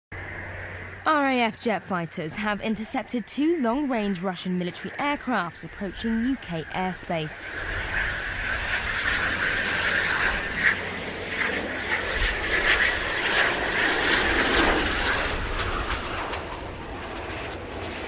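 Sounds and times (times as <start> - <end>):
military aircraft engine roar: 0.1 - 18.0.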